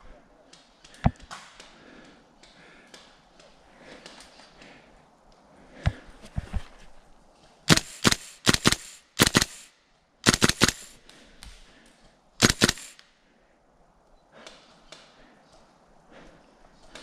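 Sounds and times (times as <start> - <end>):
airsoft gun firing sharp cracks: 7.7 - 11.0, 12.4 - 13.1.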